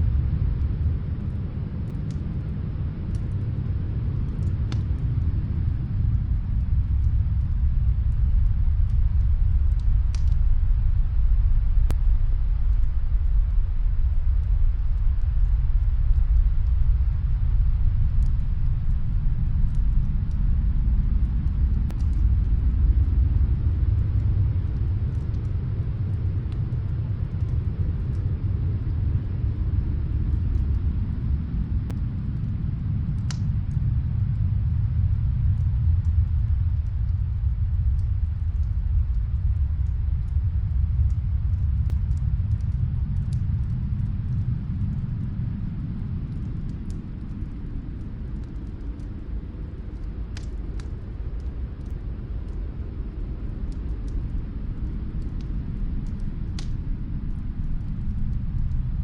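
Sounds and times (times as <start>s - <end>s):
snowstorm wind low rumble: 0.0s - 59.0s
fireplace crackling: 39.6s - 58.8s.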